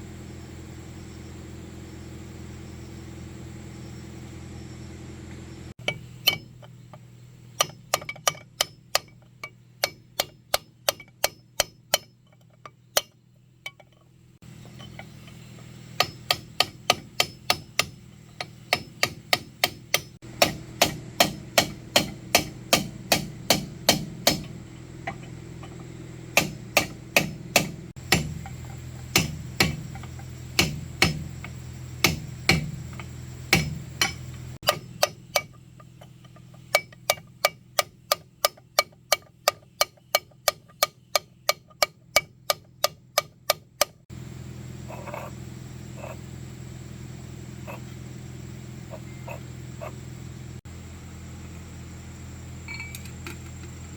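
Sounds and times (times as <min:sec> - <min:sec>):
steady low hum: 0:00.0 - 0:53.9
hammer blows: 0:14.6 - 0:44.0.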